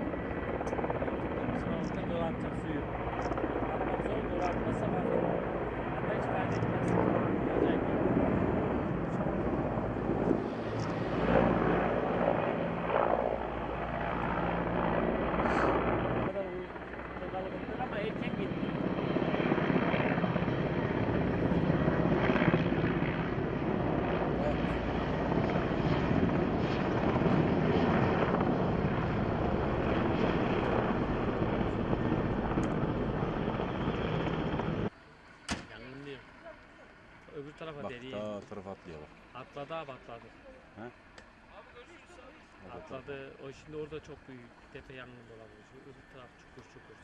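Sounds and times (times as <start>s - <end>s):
helicopter engine and rotor drone: 0.0s - 47.0s.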